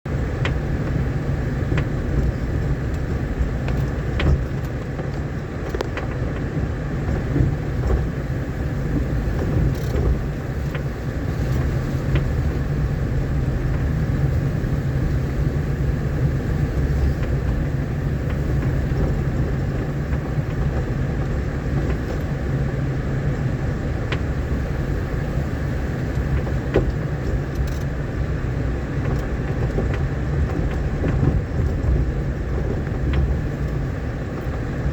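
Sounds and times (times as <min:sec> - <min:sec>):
vehicle engine and tyres rumbling: 0:00.0 - 0:34.9.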